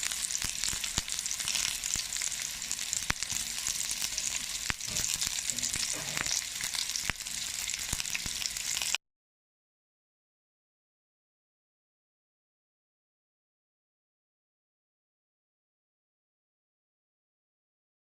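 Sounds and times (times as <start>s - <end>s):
meat sizzling on a hot pan: 0.0s - 9.0s.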